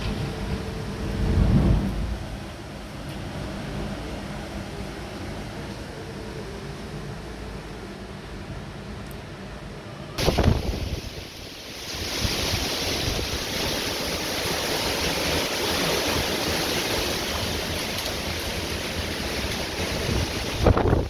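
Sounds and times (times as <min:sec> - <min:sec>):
wind buffeting microphone: 0:00.0 - 0:02.9, 0:10.2 - 0:21.0
heavy rain pouring: 0:00.0 - 0:04.0, 0:10.2 - 0:21.0.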